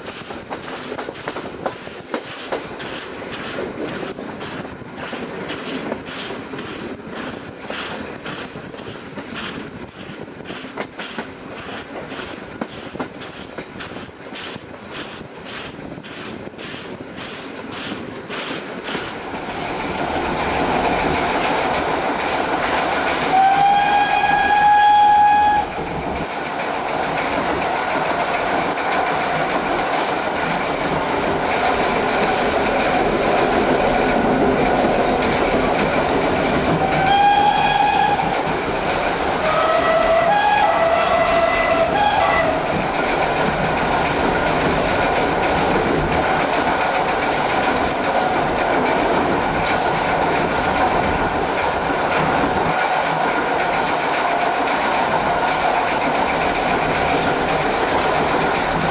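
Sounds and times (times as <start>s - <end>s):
train wheels rumbling and rattling: 0.0s - 58.9s
steam locomotive whistle: 23.2s - 25.9s, 36.8s - 38.5s, 39.4s - 42.7s.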